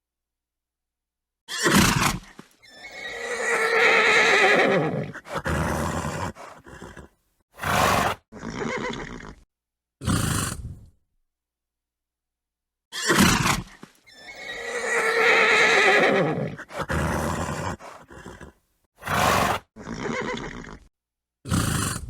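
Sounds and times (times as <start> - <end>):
horse whinnying: 1.5 - 9.4, 12.9 - 20.9
horse snorting: 1.6 - 9.4, 10.0 - 10.9, 13.1 - 20.9, 21.5 - 22.0.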